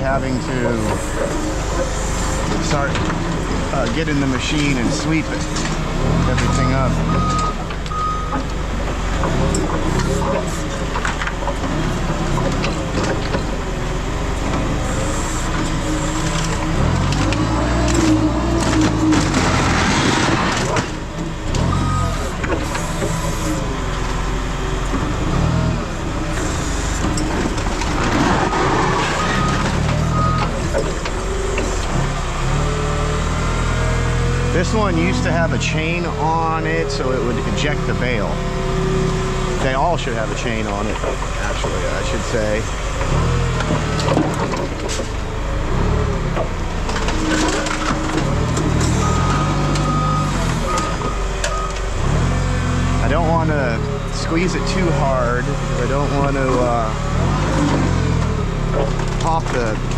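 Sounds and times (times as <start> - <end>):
metal cracking and creaking: 0.0 - 32.4, 46.4 - 52.1
yard machine engine running: 0.0 - 59.9
reversing alarm beeps: 6.4 - 8.4, 21.7 - 22.3, 29.2 - 30.5, 49.0 - 51.8.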